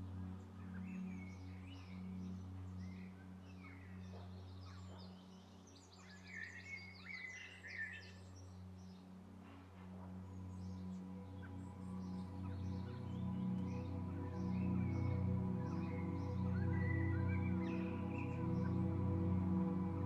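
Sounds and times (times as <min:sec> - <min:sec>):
birds chirping and trilling: 0:00.0 - 0:20.0
low steady drone: 0:08.3 - 0:20.0.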